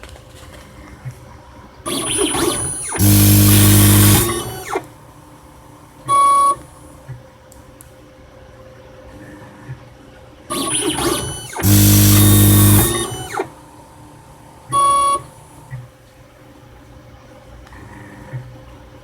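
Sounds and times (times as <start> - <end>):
motor whir: 1.9 - 5.2, 10.5 - 15.9
loud steady buzz: 1.9 - 7.0, 10.5 - 15.9.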